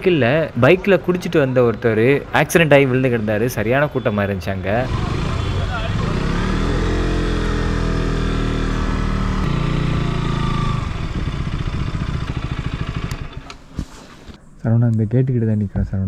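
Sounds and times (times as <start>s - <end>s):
motorcycle engine slowing and idling: 4.7s - 14.4s.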